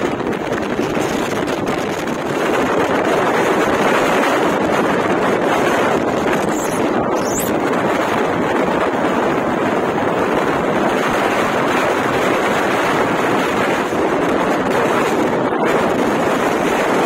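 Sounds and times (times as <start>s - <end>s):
wind blasting microphone: 0.0s - 17.0s.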